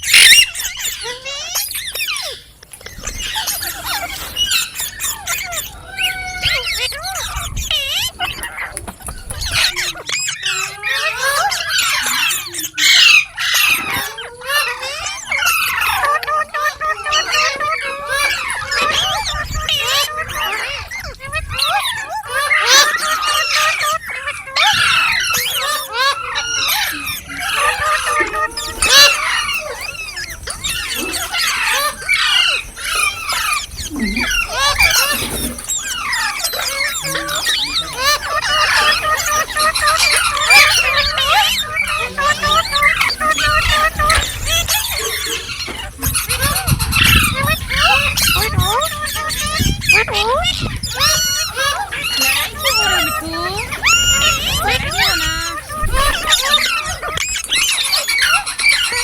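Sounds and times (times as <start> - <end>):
parrot chattering and squawking: 21.6 - 59.0.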